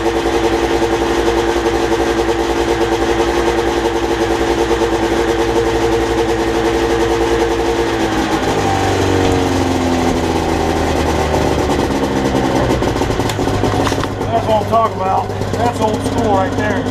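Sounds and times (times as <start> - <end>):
snowmobile engine running: 0.0 - 16.9.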